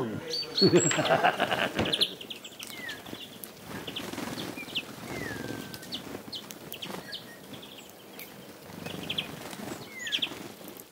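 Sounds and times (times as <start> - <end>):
birds chirping: 0.0 - 10.9.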